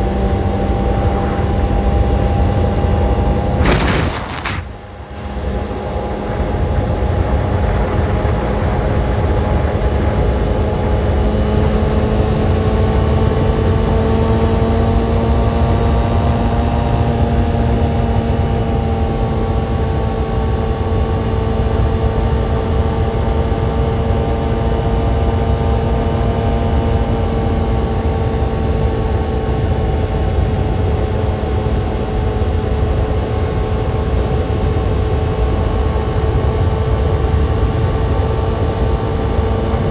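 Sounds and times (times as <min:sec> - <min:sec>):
motorcycle engine running: 0:00.0 - 0:04.8.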